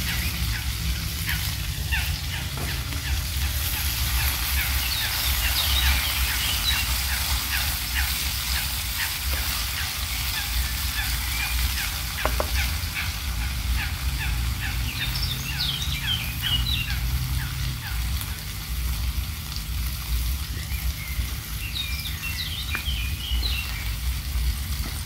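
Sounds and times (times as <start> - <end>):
steady low rumble: 0.0 - 15.3
single knock: 12.2 - 12.6.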